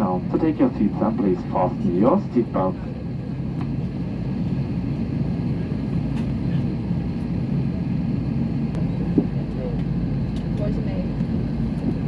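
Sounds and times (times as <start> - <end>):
airliner cabin hum: 0.0 - 12.0.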